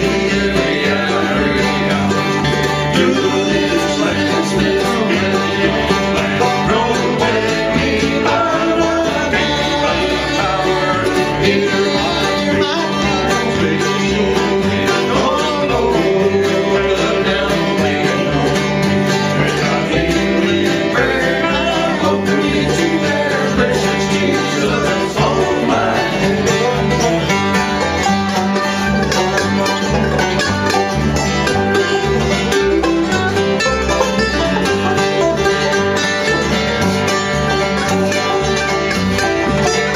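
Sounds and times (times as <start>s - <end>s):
acoustic guitar: 0.0s - 39.9s
banjo: 0.0s - 39.9s
bluegrass gospel band playing: 0.0s - 39.9s.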